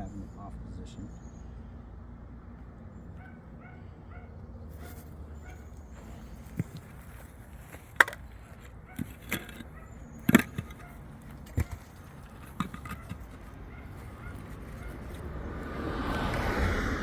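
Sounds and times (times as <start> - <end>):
knocks and clunks: 5.9 - 15.5.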